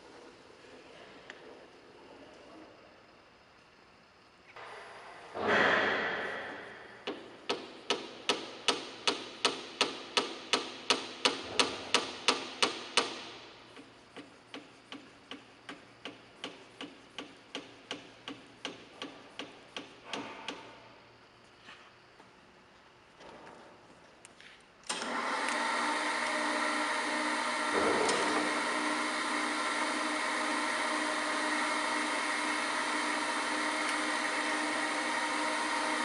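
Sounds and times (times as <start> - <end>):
loud grinder machine noise: 25.0 - 36.0.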